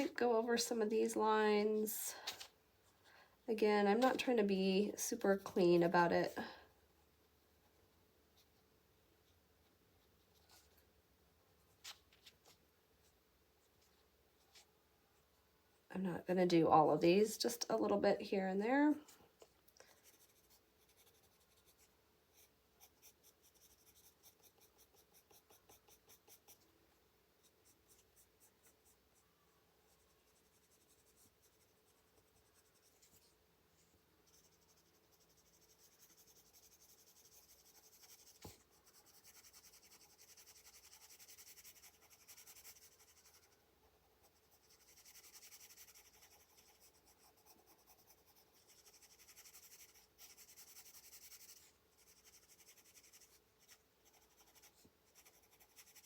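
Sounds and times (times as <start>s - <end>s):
pencil scratching on paper: 20.0s - 26.6s, 27.4s - 29.0s, 29.9s - 33.3s, 34.2s - 43.6s, 44.2s - 56.0s.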